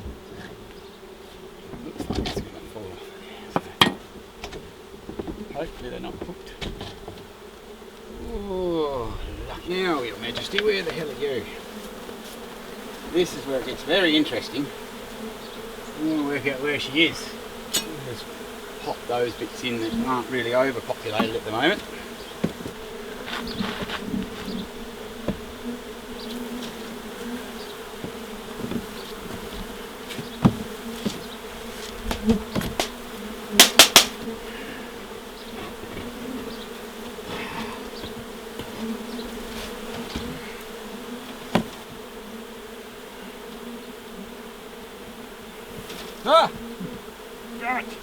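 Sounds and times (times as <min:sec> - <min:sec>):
honey bees buzzing: 0:00.0 - 0:48.0
scattered knocks: 0:33.6 - 0:34.2
sharp clicks: 0:33.6 - 0:34.2.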